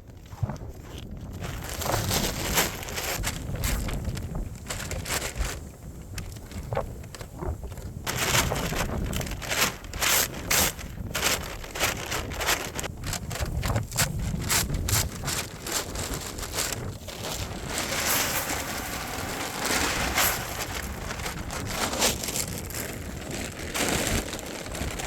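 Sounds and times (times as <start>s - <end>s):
wind buffeting microphone: 0.0s - 25.0s
footsteps crunching through snow: 8.1s - 25.0s.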